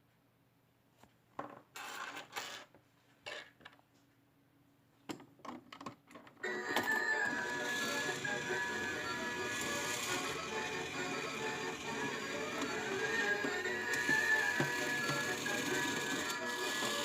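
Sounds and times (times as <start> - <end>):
coins rattling into toy machine: 1.8 - 2.7
electronic tune: 6.5 - 16.6.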